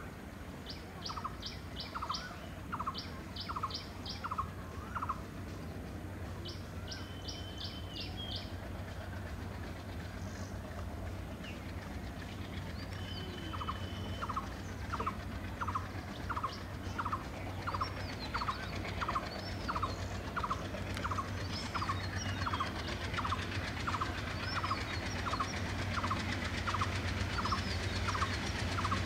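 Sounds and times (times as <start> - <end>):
distant diesel locomotive drone: 0.0 - 29.0
other birds calling: 6.4 - 29.0
bird two-part call: 12.8 - 29.0.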